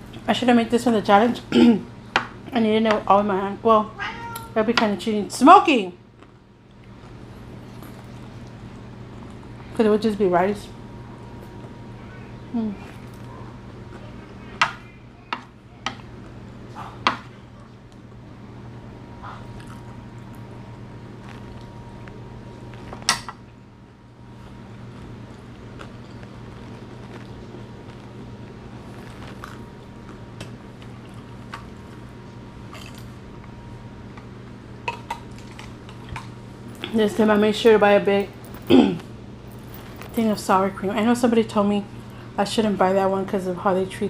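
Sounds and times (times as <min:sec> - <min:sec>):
steady low hum: 0:00.0 - 0:44.0
food crunching: 0:19.4 - 0:23.2, 0:24.3 - 0:37.0.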